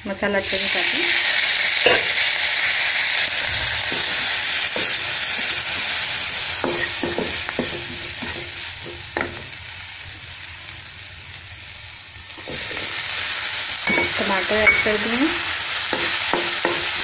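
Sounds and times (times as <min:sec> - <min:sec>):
masala sizzling in hot oil: 0:00.0 - 0:17.0
spatula scraping and knocking pan: 0:03.8 - 0:05.9, 0:15.8 - 0:17.0.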